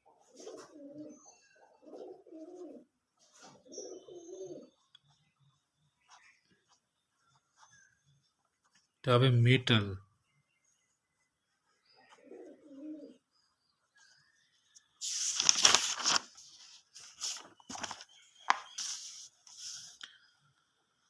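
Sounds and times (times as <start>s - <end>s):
bird cooing softly: 0.0s - 4.9s, 11.9s - 13.3s
scratchy rustling: 15.0s - 20.0s.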